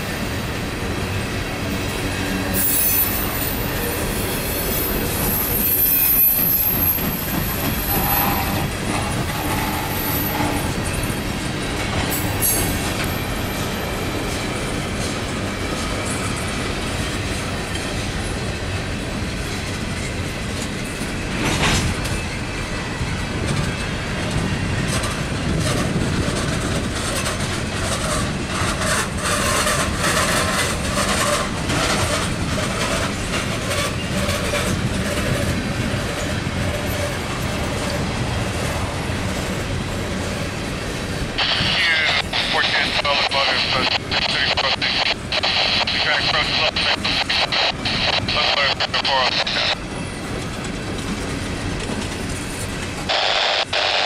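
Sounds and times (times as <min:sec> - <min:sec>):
steel wheels rumbling on rails: 0:00.0 - 0:53.9
high wheel squeals: 0:02.5 - 0:11.3
wheels clacking over rail joints: 0:23.3 - 0:41.4.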